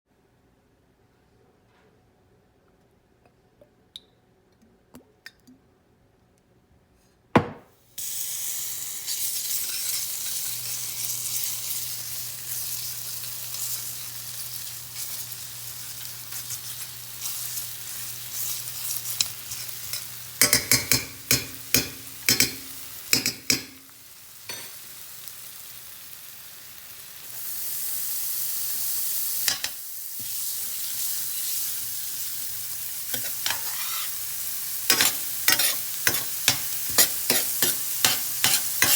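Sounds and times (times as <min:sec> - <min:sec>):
sharp knock: 0:07.4 - 0:07.7
food sizzling in a pan: 0:07.9 - 0:38.9.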